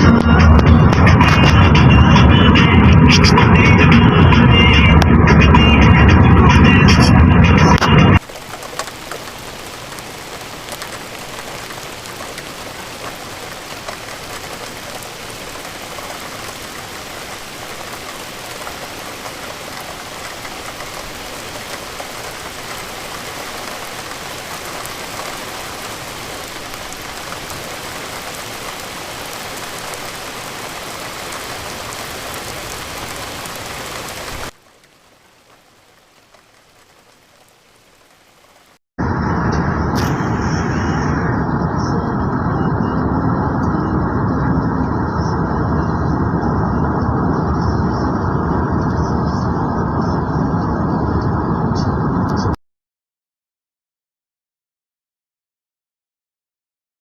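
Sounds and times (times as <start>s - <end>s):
steady rain hiss: 8.2s - 38.8s.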